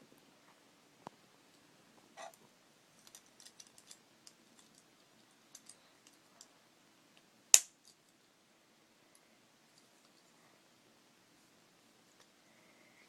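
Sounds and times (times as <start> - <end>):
plastic pieces clicking: 3.0 - 4.0.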